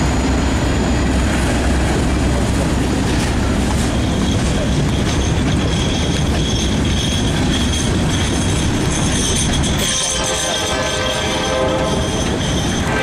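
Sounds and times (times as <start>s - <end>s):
train wheels rumbling and rattling: 0.0s - 13.0s
high wheel squeal: 3.2s - 13.0s.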